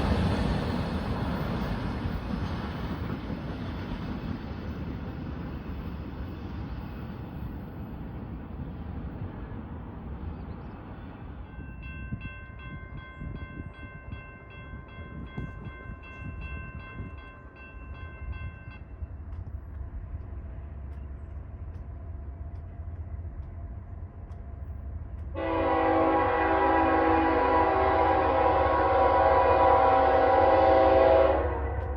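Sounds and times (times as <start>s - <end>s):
crossing bell ringing: 11.4s - 19.2s
locomotive air horn: 25.4s - 31.9s.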